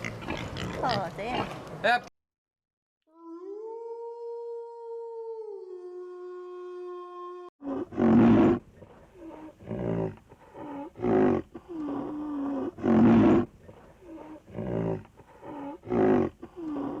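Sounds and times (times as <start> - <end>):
long howl: 3.1 - 7.5
tiger roaring: 7.6 - 17.0.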